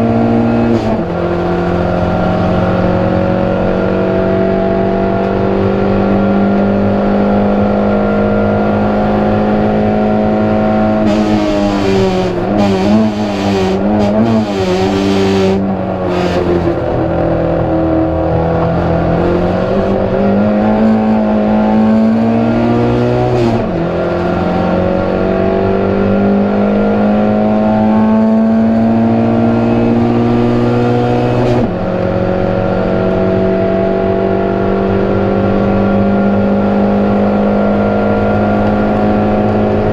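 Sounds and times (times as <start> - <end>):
race car engine pulling hard: 0.0 - 39.9
bursts of rough noise: 11.0 - 16.8.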